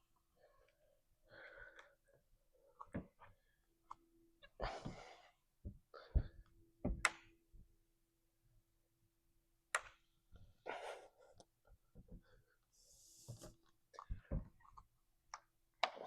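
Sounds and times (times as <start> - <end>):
hands knocking on climbing holds: 5.7 - 7.1.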